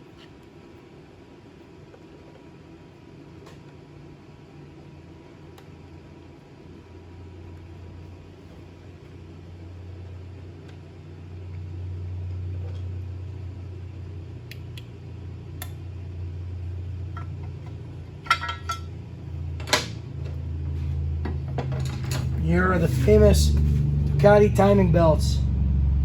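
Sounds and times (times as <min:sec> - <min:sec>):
steady low hum: 0:00.0 - 0:26.0
metal parts clattering: 0:18.2 - 0:18.9.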